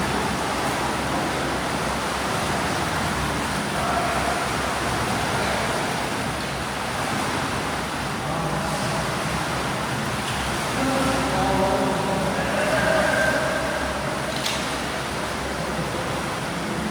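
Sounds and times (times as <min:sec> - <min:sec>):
water splashing from swimmers: 0:00.0 - 0:16.9
faint voices: 0:10.7 - 0:14.4.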